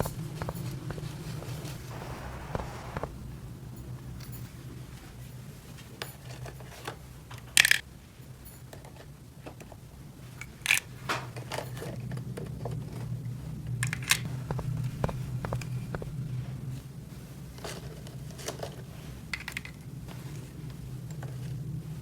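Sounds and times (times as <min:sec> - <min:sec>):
low steady hum: 0:00.0 - 0:22.0
plastic pieces clacking: 0:07.4 - 0:07.8, 0:10.4 - 0:11.9, 0:13.8 - 0:14.3, 0:19.4 - 0:19.8
plastic toy pieces clicking: 0:07.4 - 0:07.8, 0:10.4 - 0:10.9.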